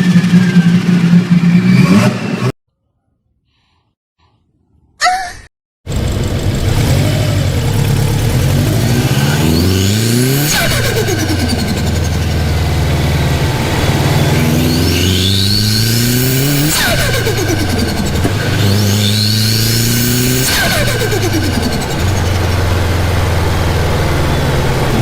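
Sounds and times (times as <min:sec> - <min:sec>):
car engine revving: 0:05.9 - 0:25.0.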